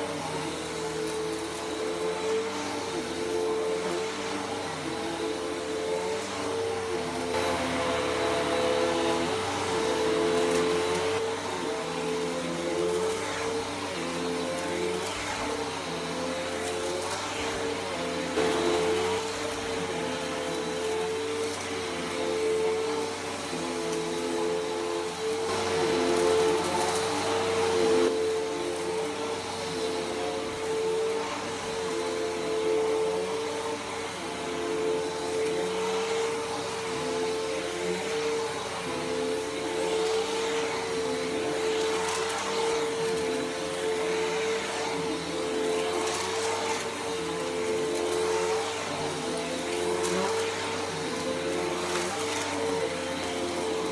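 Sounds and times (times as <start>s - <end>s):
vacuum cleaner on carpet: 0.0s - 53.9s.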